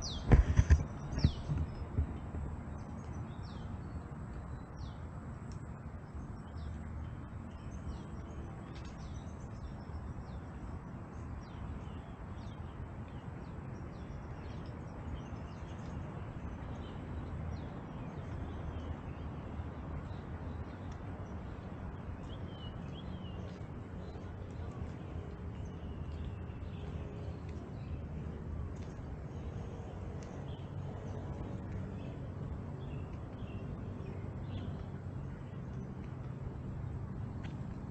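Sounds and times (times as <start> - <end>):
birds chirping: 0.0 - 5.0
steady low rumble: 0.0 - 37.9.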